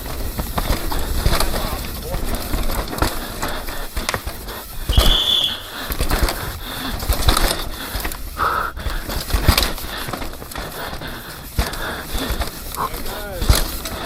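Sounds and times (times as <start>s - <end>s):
mountain bike rattling and knocking: 0.0s - 14.0s
short whistling tones: 4.8s - 5.8s.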